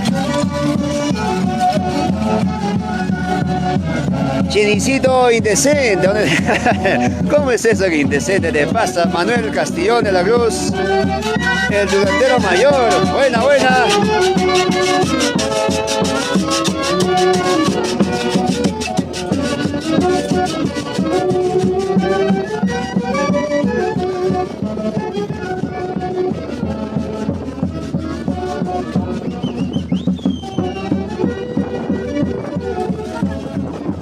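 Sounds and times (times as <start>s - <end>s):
folk band with saxophones: 0.0s - 34.0s
high whistling glide: 29.2s - 31.1s.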